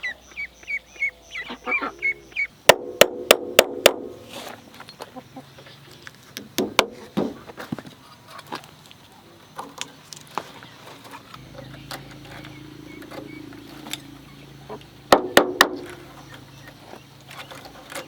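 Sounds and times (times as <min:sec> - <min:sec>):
sharp knocks: 0:02.7 - 0:04.2, 0:15.1 - 0:16.1
low steady hum: 0:11.3 - 0:18.0.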